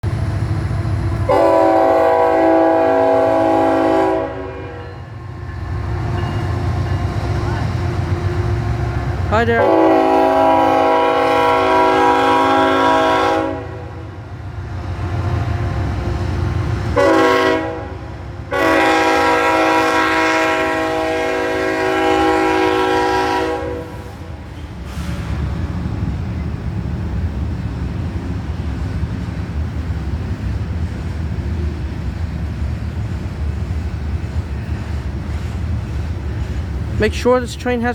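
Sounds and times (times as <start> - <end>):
freight train rumbling: 0.0 - 37.9
locomotive air horn chord: 1.3 - 5.1, 9.6 - 14.1, 17.0 - 24.4.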